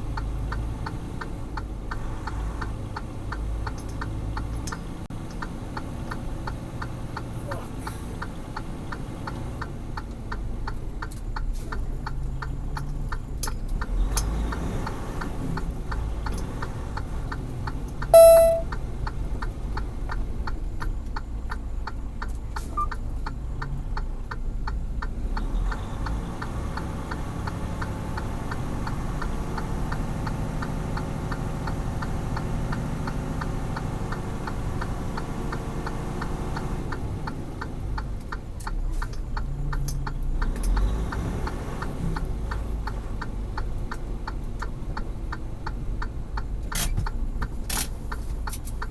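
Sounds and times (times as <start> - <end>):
indicator relay ticking: 17.0 - 19.9
short loud beep: 18.1 - 18.7.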